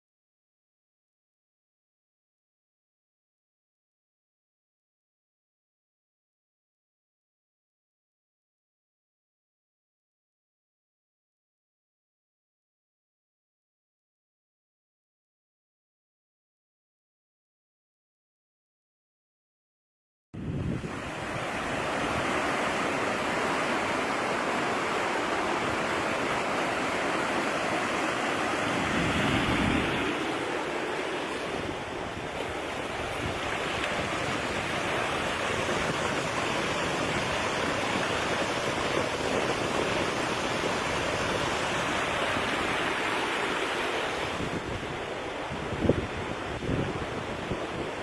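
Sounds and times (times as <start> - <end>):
water rushing: 20.4 - 48.0.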